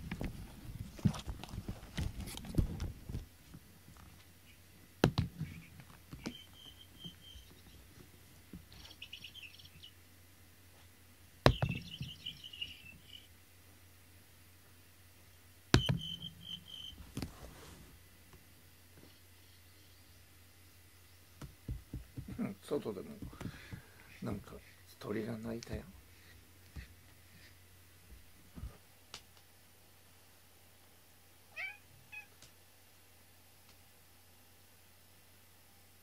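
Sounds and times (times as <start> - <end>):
bird chirping: 5.4 - 8.0, 8.7 - 10.0, 11.5 - 13.4, 15.8 - 17.0, 19.1 - 21.3.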